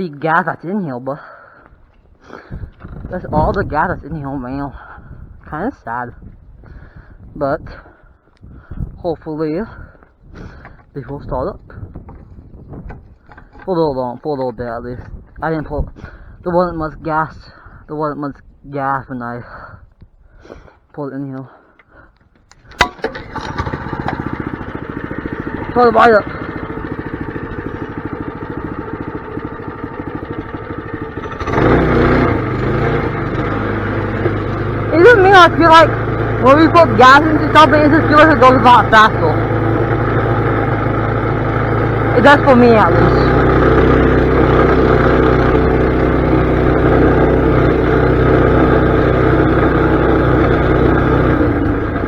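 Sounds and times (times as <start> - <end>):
small engine running: 22.7 - 52.0.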